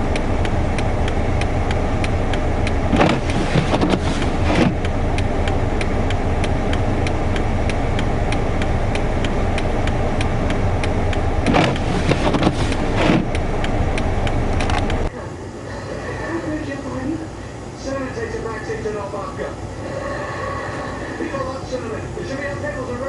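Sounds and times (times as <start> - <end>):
car engine idling: 0.0 - 15.1
even ticking: 0.0 - 15.1
wind gusting against car: 0.0 - 15.1.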